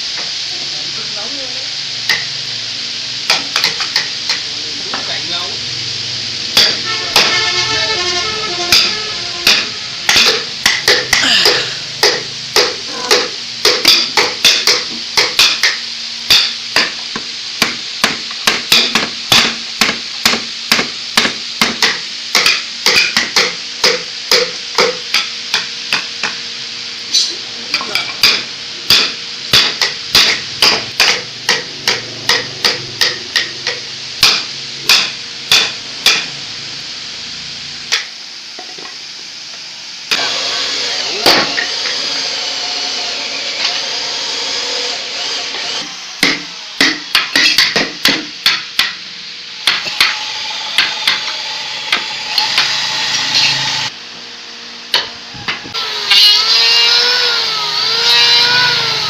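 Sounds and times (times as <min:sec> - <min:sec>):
hammering on wood: 0:08.7 - 0:26.4, 0:28.2 - 0:36.3, 0:46.2 - 0:49.0.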